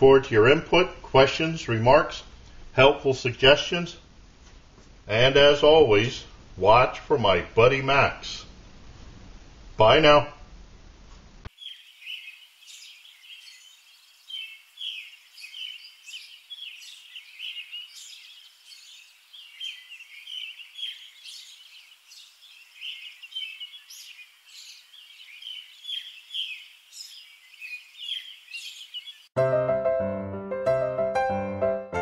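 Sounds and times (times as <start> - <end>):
songbirds chirping: 11.5 - 29.4.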